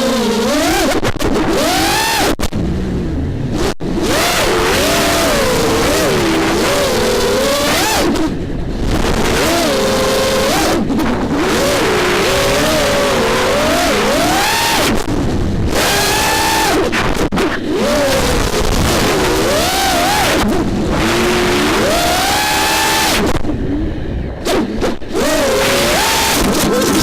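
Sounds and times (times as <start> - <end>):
quadcopter motors whining: 24.4 - 27.0.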